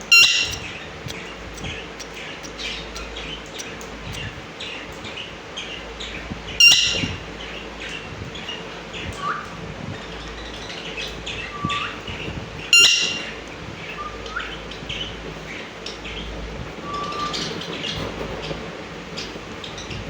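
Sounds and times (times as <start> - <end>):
parrots chirping: 0.0 - 20.0.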